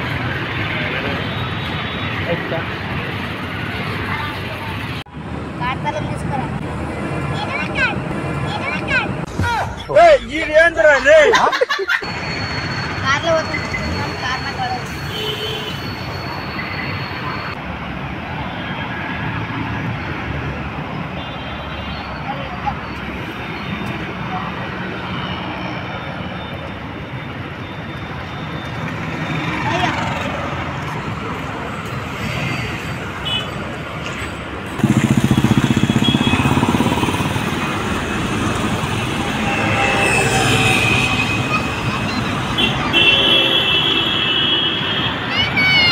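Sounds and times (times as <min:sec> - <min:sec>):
road noise: 0:00.0 - 0:45.9
vehicle engine throbbing: 0:34.7 - 0:42.6.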